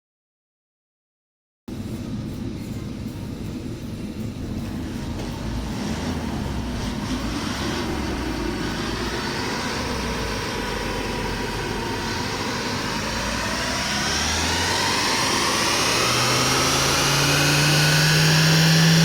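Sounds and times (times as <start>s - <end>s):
diesel engine revving under load: 4.5s - 19.0s.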